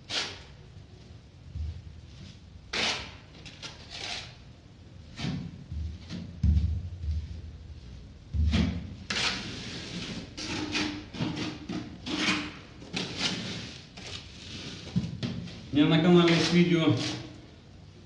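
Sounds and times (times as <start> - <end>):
spatula scraping adhesive on drywall: 0.0 - 0.5, 2.7 - 4.4, 8.5 - 15.0, 16.0 - 17.4.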